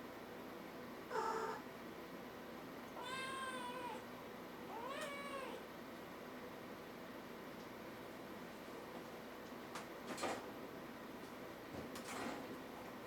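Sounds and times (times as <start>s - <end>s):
kitten meowing: 3.0s - 4.0s, 4.7s - 5.6s.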